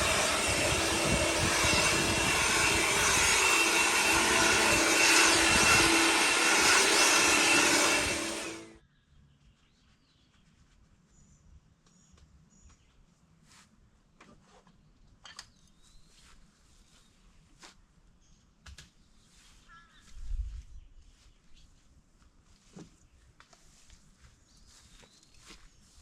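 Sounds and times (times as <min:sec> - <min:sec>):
sawmill machine noise: 0:00.0 - 0:08.8
steady hum: 0:00.0 - 0:08.8.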